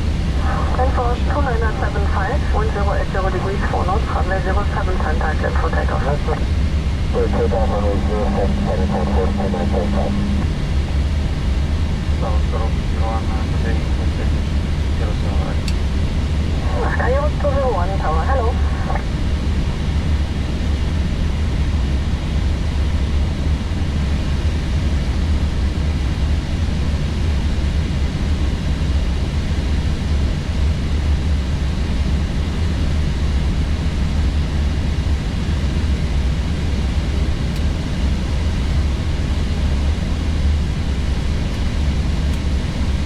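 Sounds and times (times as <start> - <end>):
aircraft cockpit drone: 0.0 - 43.0.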